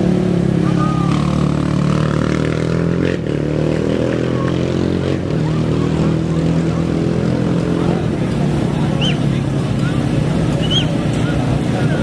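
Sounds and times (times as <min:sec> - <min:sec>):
racing engine idling: 0:05.4 - 0:12.0.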